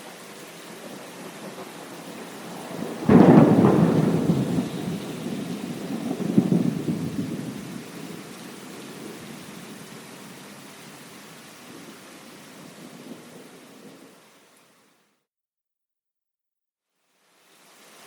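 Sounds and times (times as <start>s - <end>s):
steady rain: 0.0s - 15.2s, 16.9s - 18.0s
thunder crack and rumble: 0.8s - 10.4s.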